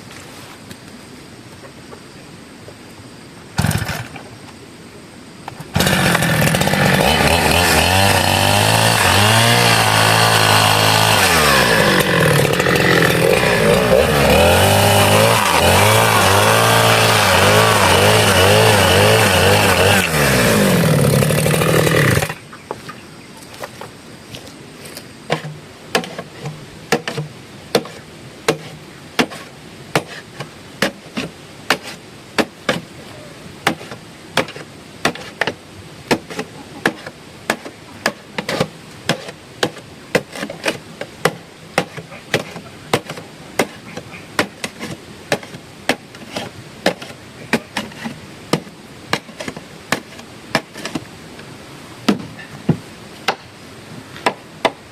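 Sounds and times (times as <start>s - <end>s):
sharp chopping strikes: 26.9s - 30.2s, 33.7s - 51.0s, 54.2s - 54.8s.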